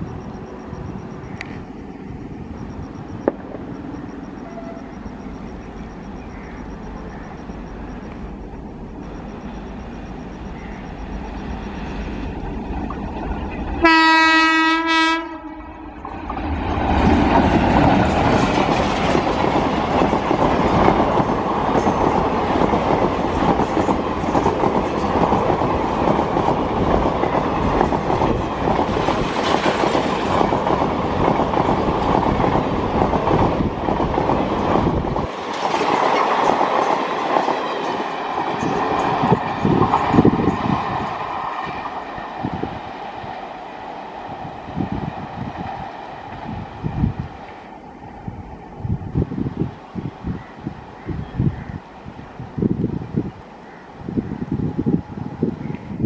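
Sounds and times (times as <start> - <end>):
train coaches rumbling past: 0.0 - 56.0
locomotive horn: 4.4 - 5.0, 13.8 - 15.8
wheels clacking over rail joints: 15.9 - 46.6.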